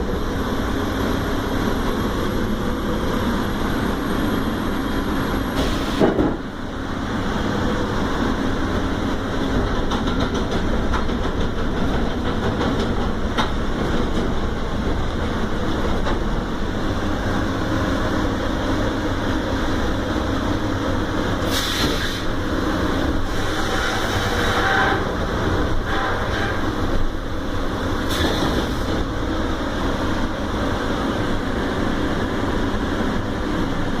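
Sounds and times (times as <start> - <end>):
short hiss: 21.5 - 22.3.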